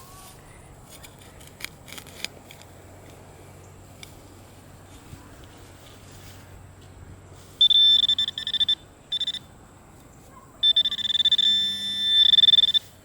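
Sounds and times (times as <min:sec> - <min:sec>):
metal detector beeping: 0:07.6 - 0:09.6, 0:10.6 - 0:13.0.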